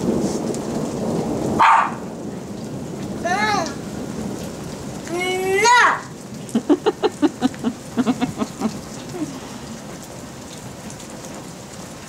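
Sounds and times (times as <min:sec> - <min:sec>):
steady rain falling: 0:00.0 - 0:12.0
toddler babbling: 0:05.1 - 0:06.1.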